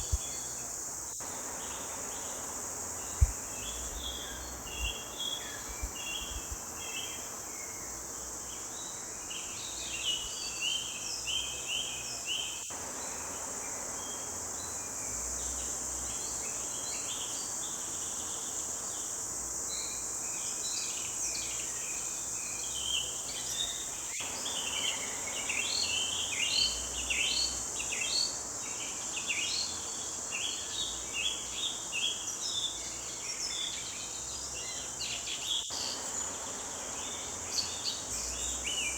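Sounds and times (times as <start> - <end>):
high-pitched insect drone: 0.0 - 8.5.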